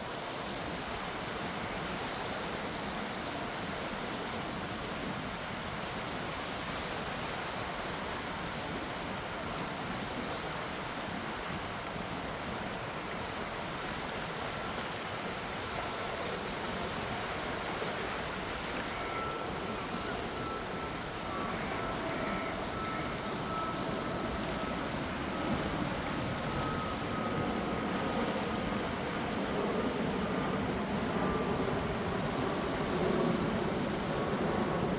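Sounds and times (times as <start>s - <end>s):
sea waves washing: 0.4s - 34.9s
faint thin steady tone: 15.6s - 30.0s.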